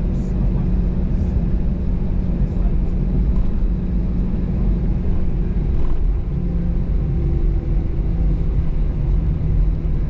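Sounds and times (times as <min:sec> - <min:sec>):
aircraft engines rumbling: 0:00.0 - 0:10.0.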